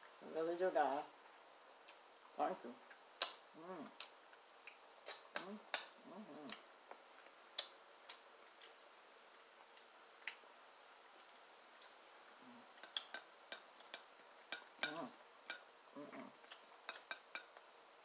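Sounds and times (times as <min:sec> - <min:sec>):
person chewing with mouth clicks: 0:01.8 - 0:06.6, 0:11.2 - 0:17.7.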